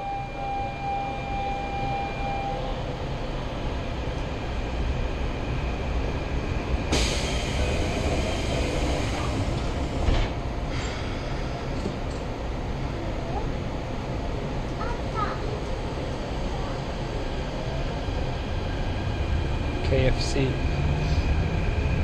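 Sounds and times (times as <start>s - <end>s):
high tone: 0.0s - 2.8s.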